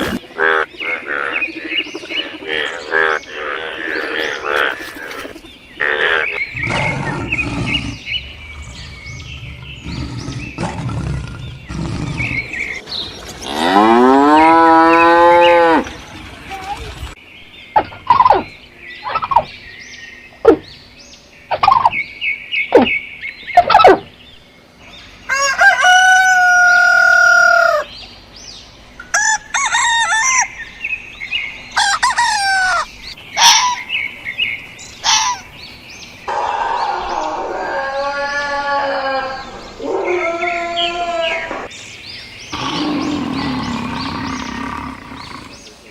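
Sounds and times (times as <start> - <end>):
hens clucking: 2.4 - 11.9
rooster crowing: 25.3 - 27.9.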